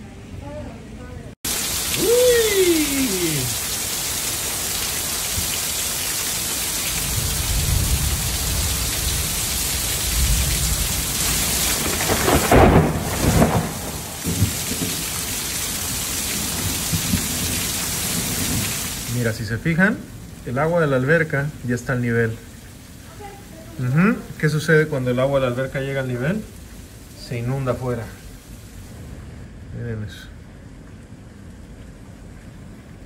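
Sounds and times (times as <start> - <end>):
heavy rain pouring on pavement: 1.4 - 33.0
low rumble of thunder: 6.9 - 22.4.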